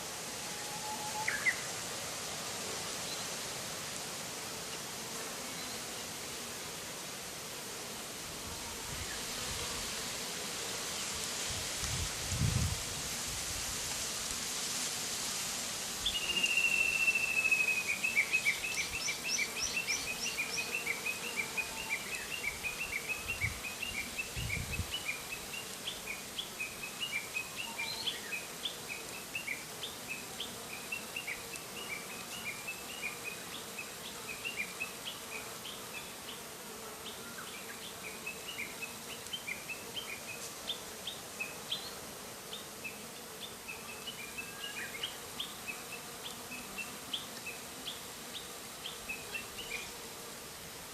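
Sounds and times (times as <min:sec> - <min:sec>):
faint hum of bees flying: 0:00.0 - 0:50.9
songbird whistling and chirping: 0:00.5 - 0:01.7, 0:16.1 - 0:19.1.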